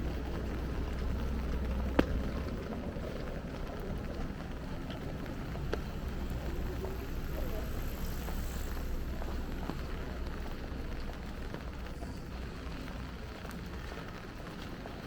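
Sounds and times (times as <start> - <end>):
low steady rumble: 0.0 - 15.0
rain pattering on an umbrella: 0.0 - 15.0.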